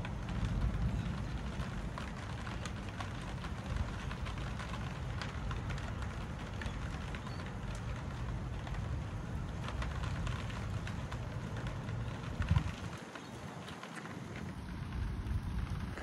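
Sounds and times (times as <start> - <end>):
rain falling: 0.0 - 16.0
raindrops ticking close by: 0.0 - 16.0
wind rumbling on microphone: 0.0 - 16.0.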